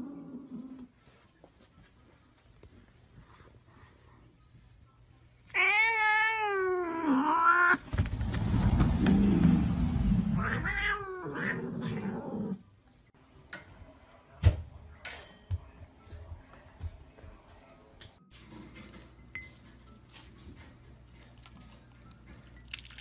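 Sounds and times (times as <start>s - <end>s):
cat meowing: 5.5s - 7.8s, 10.4s - 12.3s.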